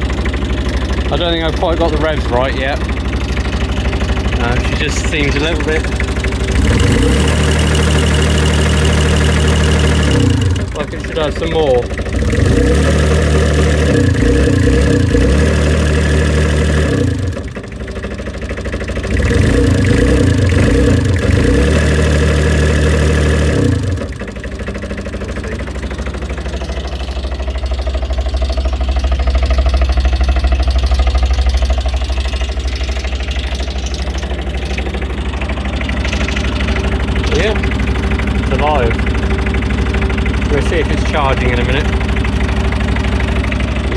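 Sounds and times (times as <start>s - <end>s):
dumper engine revving and idling: 0.0s - 43.9s.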